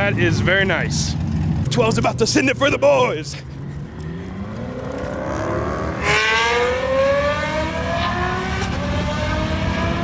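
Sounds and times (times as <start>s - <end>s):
car engine revving at full throttle: 3.8s - 10.0s.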